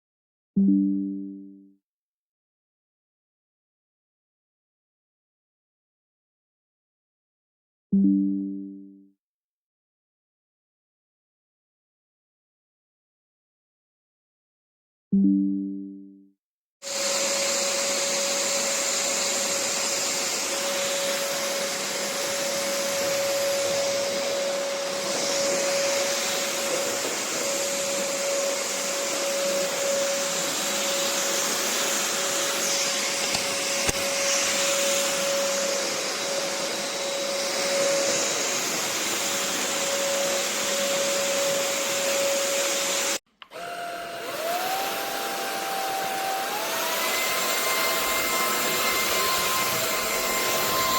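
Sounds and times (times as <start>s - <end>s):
stick vacuum motor whine: 16.9s - 50.9s.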